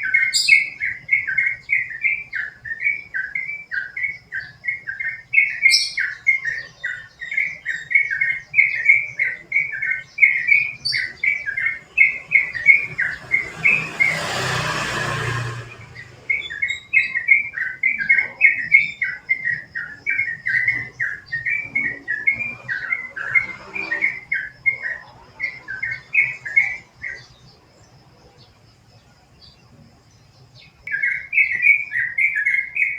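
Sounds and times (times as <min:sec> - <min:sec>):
bird chirping song: 0:00.0 - 0:32.9
rushing noise: 0:11.1 - 0:17.0, 0:21.4 - 0:27.2.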